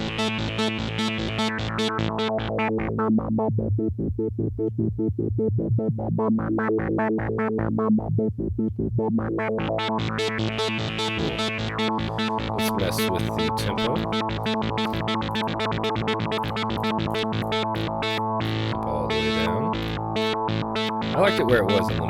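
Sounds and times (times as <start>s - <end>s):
pulsing synthesizer guitar note: 9.6s - 22.0s.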